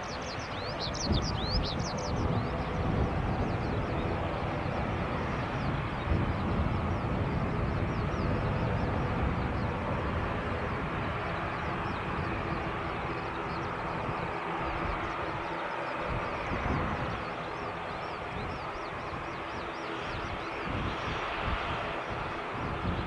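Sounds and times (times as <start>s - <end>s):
birds twittering faintly: 0.0s - 23.0s
turboprop engines running: 0.0s - 23.0s.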